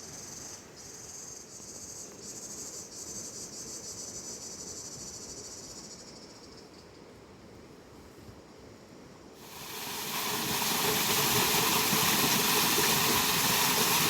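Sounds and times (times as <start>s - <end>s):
insects trilling: 0.0s - 7.0s.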